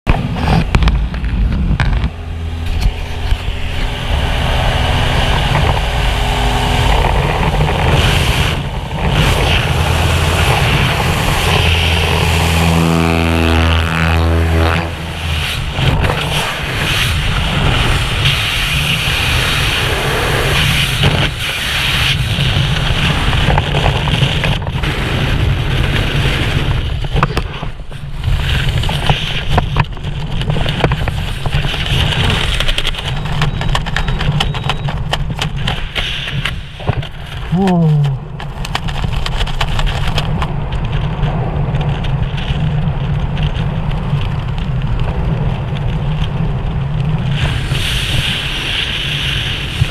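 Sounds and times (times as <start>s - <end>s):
aircraft engine drone: 0.1s - 29.5s
wind rushing on microphone: 0.1s - 49.9s.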